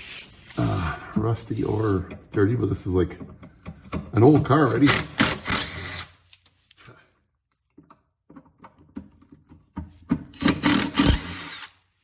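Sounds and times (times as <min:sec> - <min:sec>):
tools clicking and tapping: 0:02.0 - 0:05.8, 0:07.6 - 0:11.6
power drill spinning: 0:04.8 - 0:06.3, 0:10.3 - 0:12.0.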